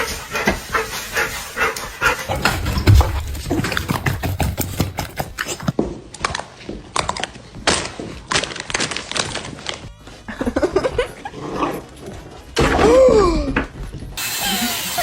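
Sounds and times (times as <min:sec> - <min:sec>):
thumps and knocks: 0:02.3 - 0:06.0.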